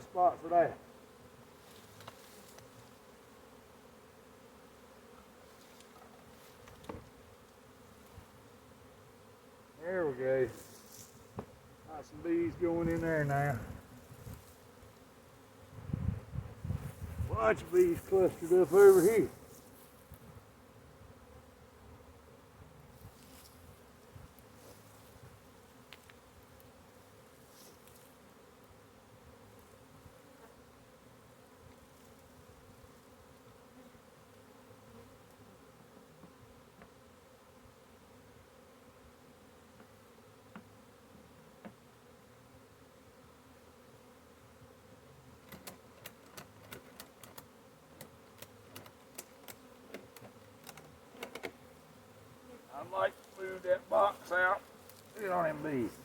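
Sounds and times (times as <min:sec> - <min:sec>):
bee swarm humming: 0:00.0 - 0:56.0
faint rustles: 0:22.9 - 0:26.6, 0:53.1 - 0:56.0.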